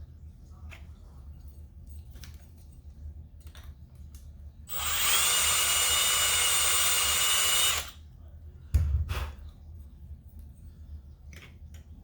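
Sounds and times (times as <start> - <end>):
handheld drill whining: 4.7 - 8.0.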